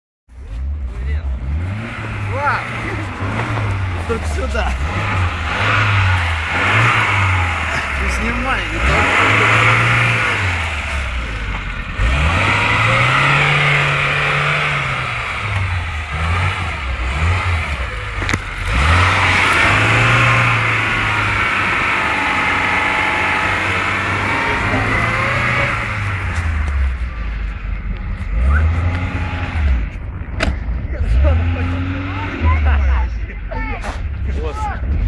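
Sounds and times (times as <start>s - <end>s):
car engine revving: 0.4s - 35.0s.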